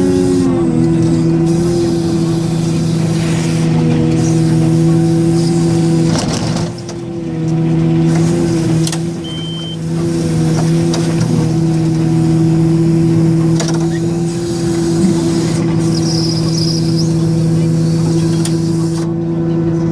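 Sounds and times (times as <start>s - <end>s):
diesel engine droning: 0.0s - 19.9s
short high beep: 9.2s - 9.8s.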